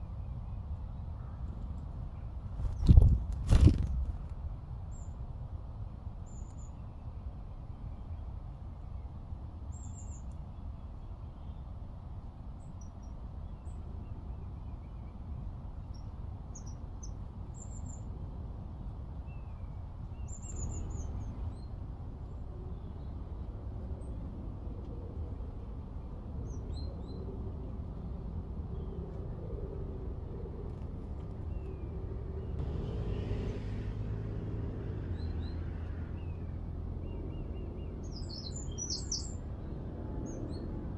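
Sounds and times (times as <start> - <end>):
birds chirping: 31.5 - 39.4.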